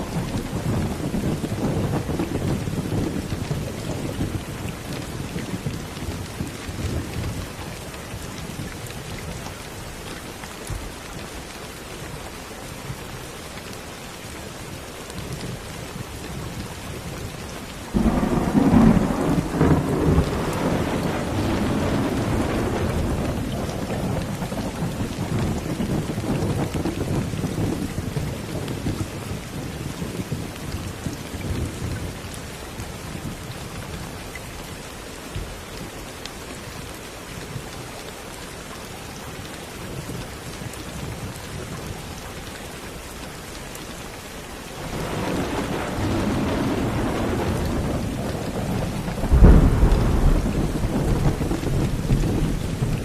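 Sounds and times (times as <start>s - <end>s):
steady rain: 0.0s - 53.0s
thunder rumbling: 17.9s - 30.5s, 44.8s - 53.0s.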